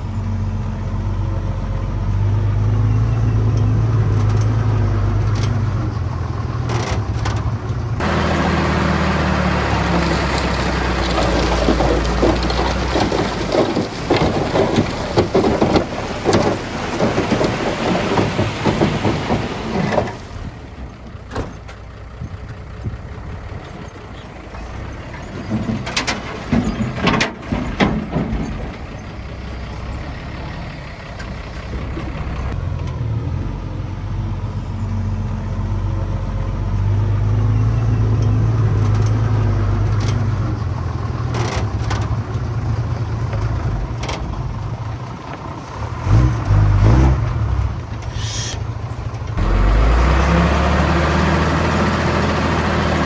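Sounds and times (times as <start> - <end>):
clattering diesel engine: 0.0 - 53.0.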